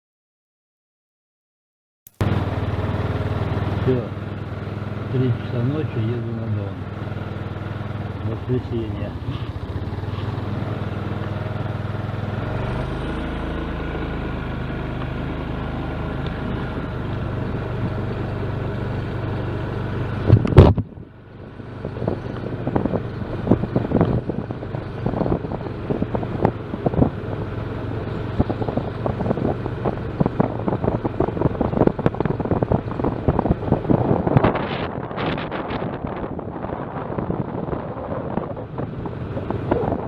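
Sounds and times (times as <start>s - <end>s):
vehicle engine and road noise: 2.1s - 40.0s
wind buffeting microphone: 20.1s - 40.0s.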